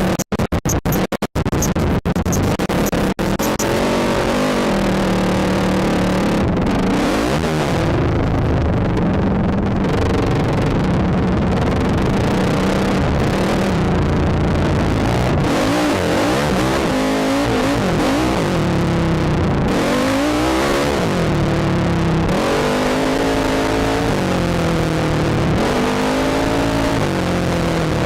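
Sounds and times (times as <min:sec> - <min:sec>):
steady rush of noise: 0:00.0 - 0:28.0
quad engine revving: 0:02.3 - 0:09.1, 0:09.8 - 0:28.0.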